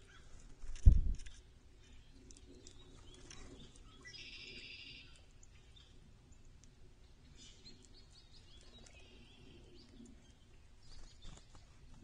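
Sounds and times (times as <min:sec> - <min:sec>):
songbird chirping: 0:01.2 - 0:12.0
faint clicks: 0:02.1 - 0:05.4.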